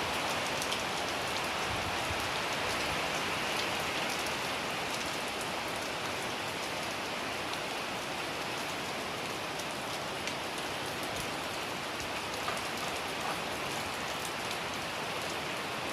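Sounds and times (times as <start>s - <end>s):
rain pattering on surfaces: 0.0s - 15.9s.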